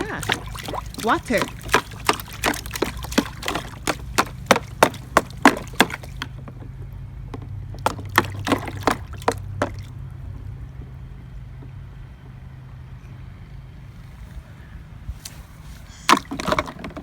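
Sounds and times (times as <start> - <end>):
hands slapping water: 0.0 - 6.3, 7.8 - 10.0, 16.1 - 17.0.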